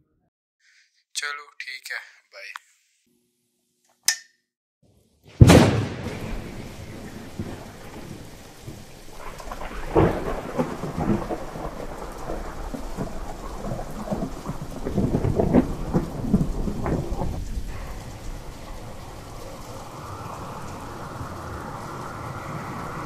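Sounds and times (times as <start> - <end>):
heavy rain: 5.4 - 23.0
rolling thunder: 5.4 - 23.0.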